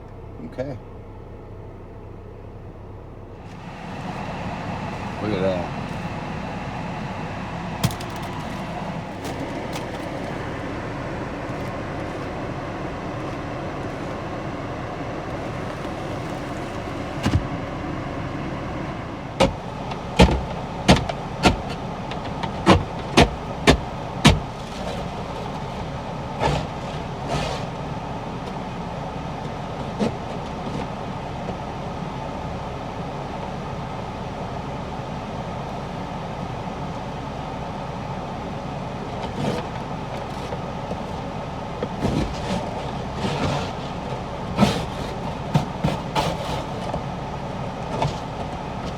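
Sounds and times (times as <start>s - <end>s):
car engine and fan running: 0.0s - 48.9s
sharp knocks on car: 7.8s - 10.3s, 19.4s - 25.0s.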